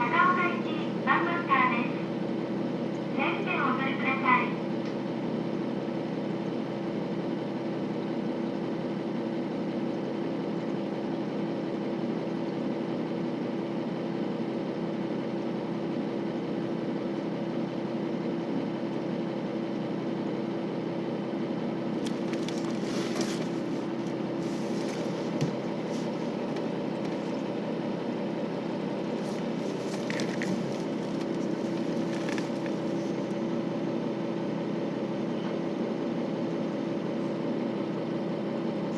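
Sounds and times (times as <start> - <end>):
diesel railcar engine hum: 0.0 - 7.6, 21.2 - 38.9.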